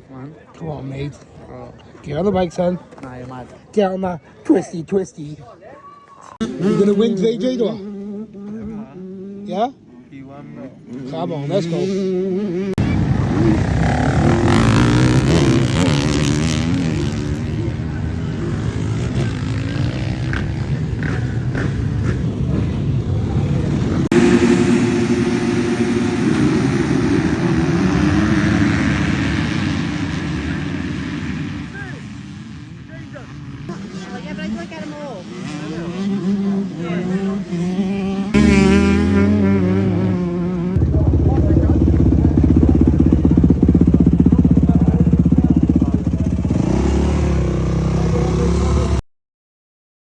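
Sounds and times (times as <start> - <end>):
motocross bike engines: 0.0 - 49.0
vehicle engine running: 40.6 - 48.6.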